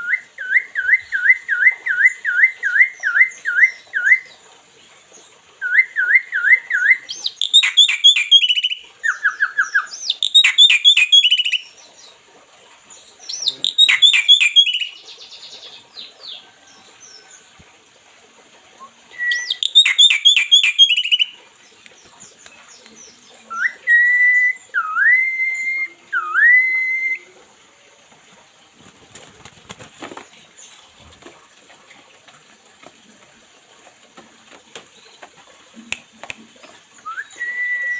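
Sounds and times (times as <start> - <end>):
pet bird whistling and chirping: 5.7 - 11.6, 13.4 - 15.0, 19.2 - 21.3.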